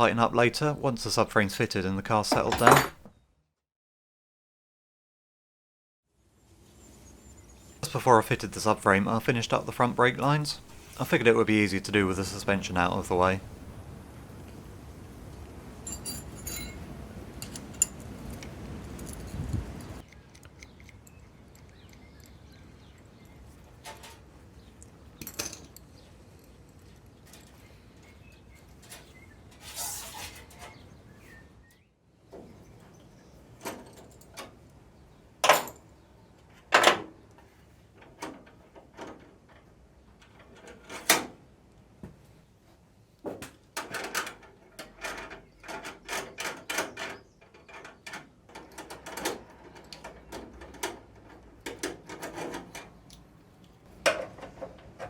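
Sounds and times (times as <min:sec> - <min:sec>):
hand tools clinking on metal: 0:02.1 - 0:03.1, 0:15.8 - 0:18.1, 0:35.4 - 0:35.9.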